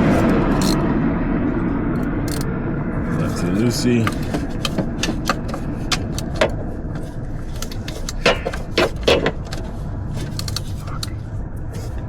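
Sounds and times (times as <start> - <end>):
socket wrench clinking: 0.5 - 0.8, 2.0 - 2.5, 4.0 - 11.1.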